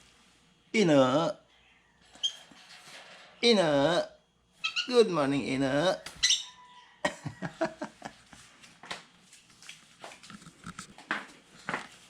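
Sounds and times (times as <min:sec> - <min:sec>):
bird chirping softly: 0:04.6 - 0:05.1.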